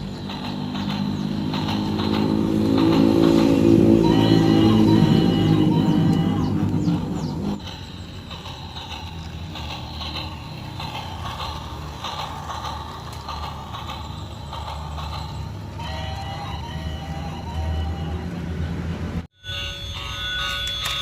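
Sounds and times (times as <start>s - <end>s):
model train motor hum: 0.0s - 18.4s
wheels clicking on rails: 0.0s - 21.0s.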